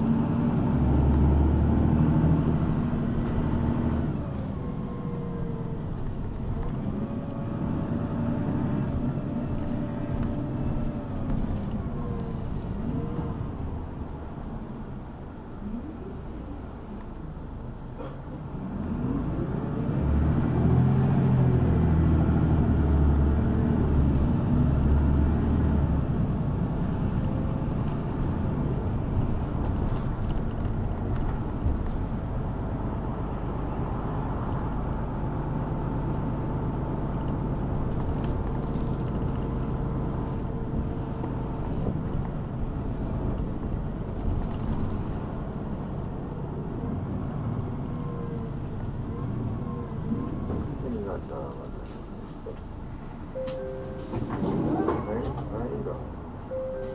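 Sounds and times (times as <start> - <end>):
bus engine pulling away: 0.0 - 56.9
road noise: 0.0 - 56.9.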